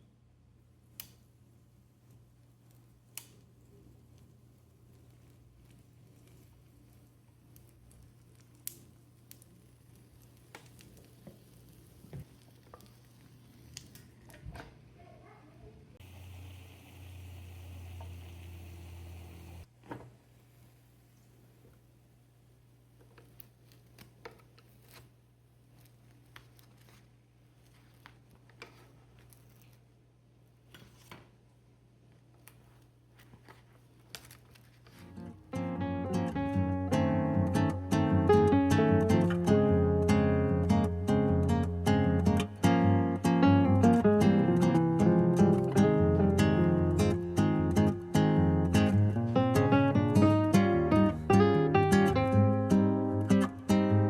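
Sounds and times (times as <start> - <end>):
low steady hum: 0.0 - 24.0
steady low hum: 15.7 - 19.7
acoustic guitar music: 35.0 - 54.0.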